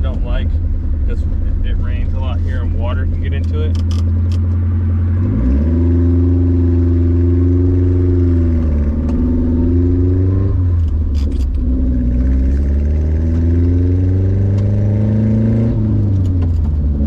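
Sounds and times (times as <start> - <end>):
car engine under load: 0.0 - 17.0.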